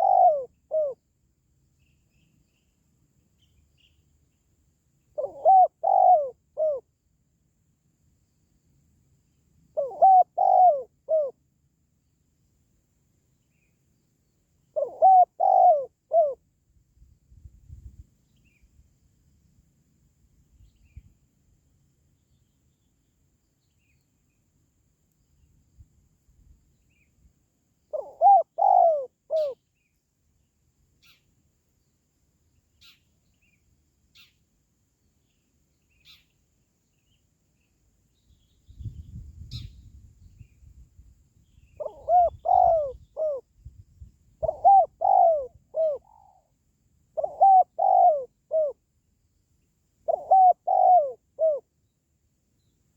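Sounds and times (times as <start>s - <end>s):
dove cooing: 0.0s - 1.0s, 5.2s - 6.9s, 9.7s - 11.4s, 14.7s - 16.4s, 27.9s - 29.6s, 41.8s - 43.5s, 44.4s - 46.5s, 47.2s - 48.8s, 50.0s - 51.7s.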